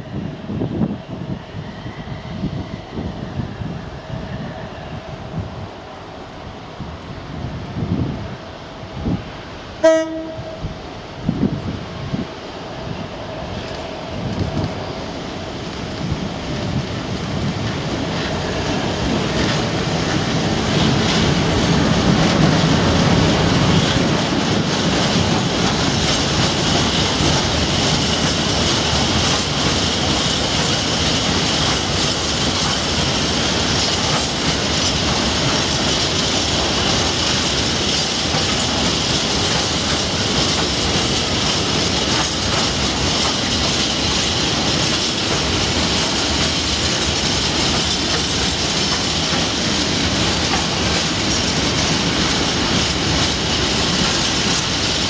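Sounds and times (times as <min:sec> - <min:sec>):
diesel locomotive engine passing: 0:00.0 - 0:55.0
wheels clattering over rails: 0:15.9 - 0:55.0.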